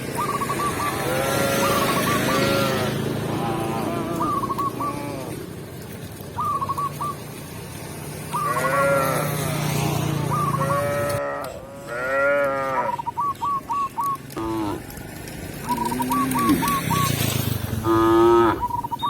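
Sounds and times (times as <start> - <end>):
cow mooing: 1.0 - 5.4, 8.4 - 9.7, 10.6 - 13.1, 14.4 - 14.9, 15.7 - 16.7, 17.8 - 18.6.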